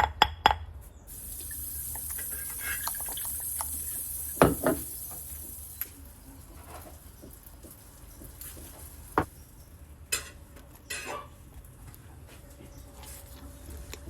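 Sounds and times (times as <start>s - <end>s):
running tap water: 1.1s - 6.2s
kitchenware knocking: 4.4s - 4.9s.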